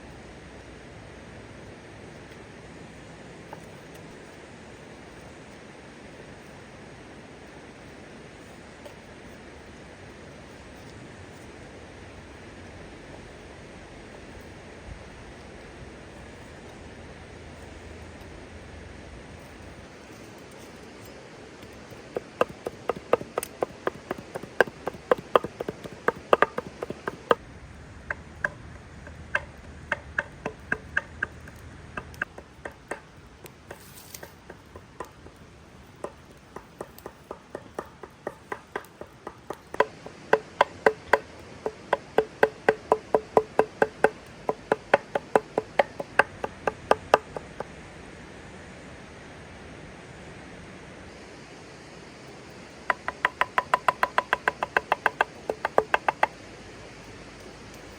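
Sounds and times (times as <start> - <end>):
knife chopping on wooden board: 21.7 - 27.4, 29.3 - 33.1, 36.0 - 47.5.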